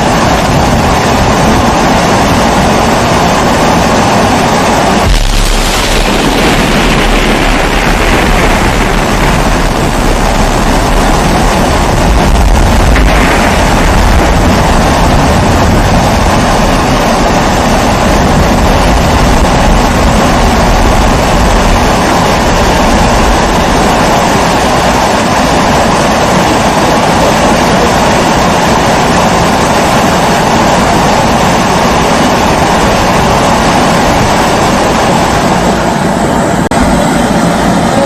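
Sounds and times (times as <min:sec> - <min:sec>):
low rumble: 0:00.0 - 0:26.6.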